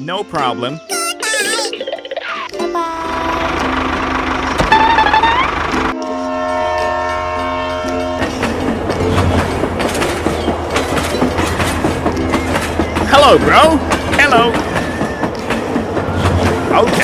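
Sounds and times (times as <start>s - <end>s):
rumbling rattling vehicle: 3.1s - 6.0s.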